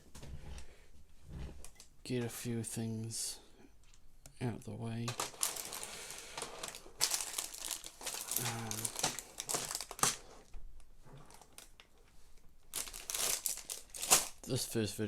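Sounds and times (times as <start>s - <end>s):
plastic bags crinkling: 5.1s - 10.5s, 11.1s - 11.9s, 12.6s - 14.5s.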